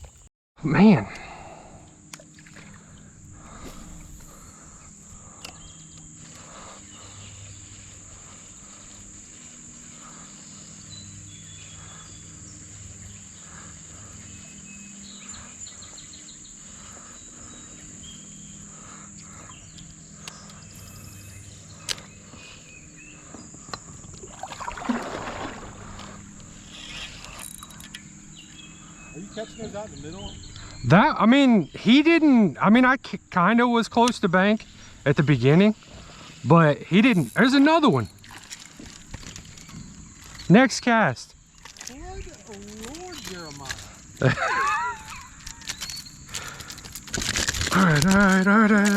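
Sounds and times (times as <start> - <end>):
insects trilling: 0.0 - 48.9
rustling: 41.5 - 48.9.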